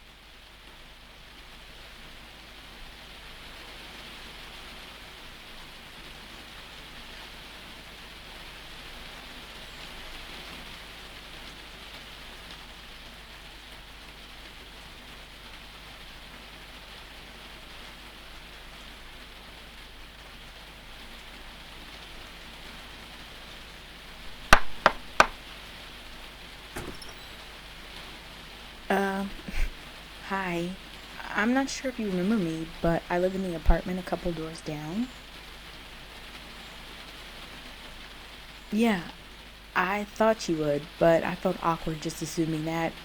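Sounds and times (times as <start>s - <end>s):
steady rain falling: 0.0s - 43.0s
knocks on a door: 24.3s - 25.4s.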